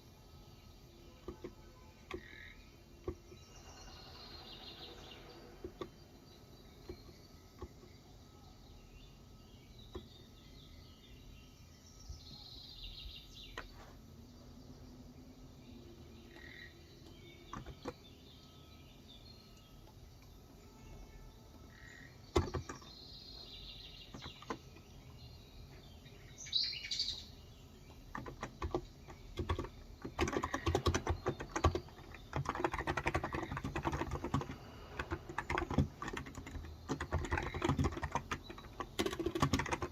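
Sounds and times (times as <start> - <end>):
birds chirping: 0.0 - 39.9
fast keyboard typing: 17.2 - 18.1, 22.2 - 23.0, 24.1 - 24.9, 27.9 - 39.9.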